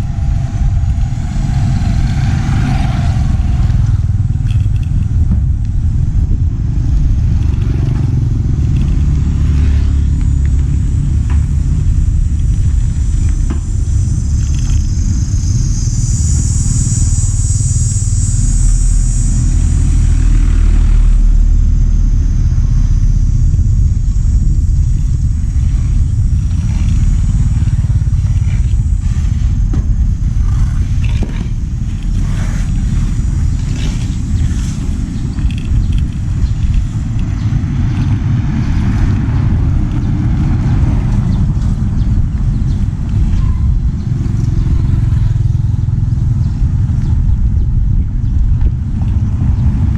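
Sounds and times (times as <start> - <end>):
vehicle low rumble: 0.0 - 49.9.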